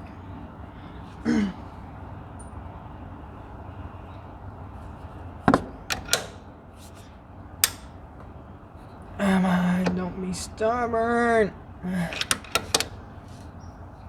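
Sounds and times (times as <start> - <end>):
low background hum: 0.0 - 14.0
tools clanking on metal: 5.6 - 8.0, 12.0 - 13.5.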